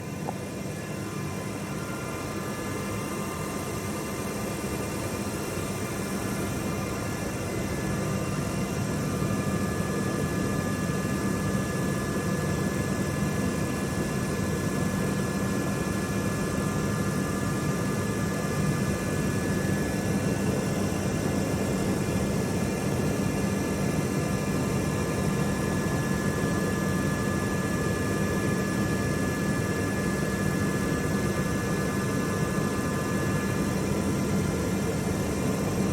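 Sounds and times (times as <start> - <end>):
machining centre humming and whining: 0.0 - 35.9.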